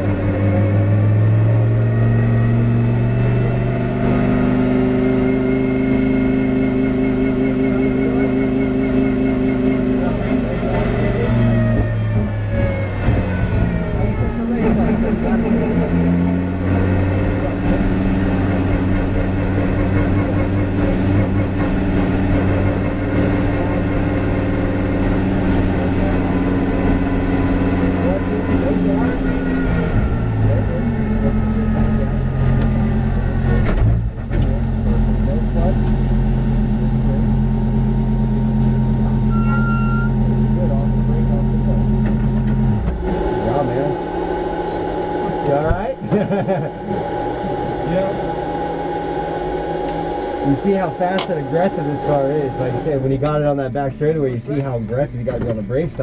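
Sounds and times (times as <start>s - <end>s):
race car engine running: 0.0s - 56.0s.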